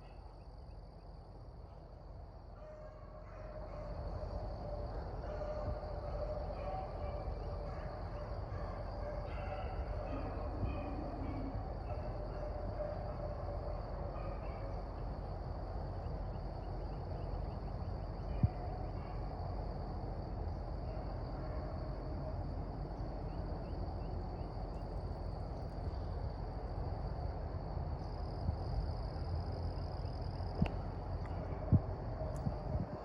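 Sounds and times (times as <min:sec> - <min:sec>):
insect drone: 0:00.0 - 0:33.0
wind on microphone: 0:30.5 - 0:33.0.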